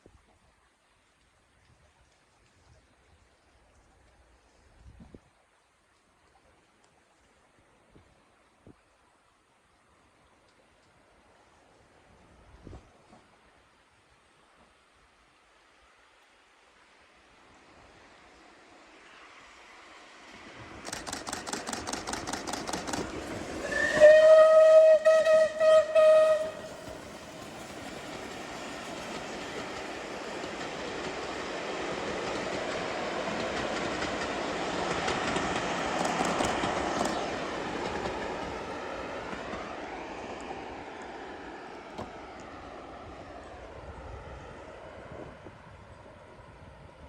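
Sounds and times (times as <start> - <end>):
train rumbling past: 16.5 - 47.0
steam locomotive exhaust beating: 20.2 - 41.2
steam whistle blast: 23.6 - 26.9.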